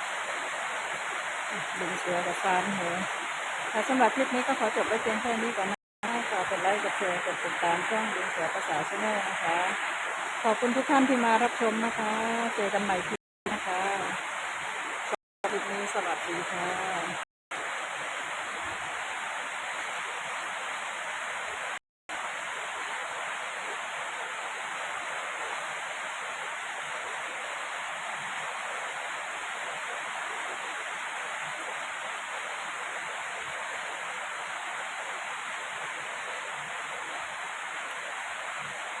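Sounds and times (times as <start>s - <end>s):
heavy rain: 0.0s - 39.0s.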